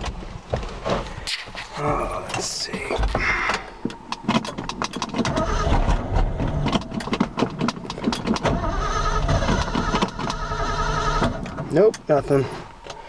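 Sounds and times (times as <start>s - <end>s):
truck engine cranking on starter: 3.5s - 12.1s.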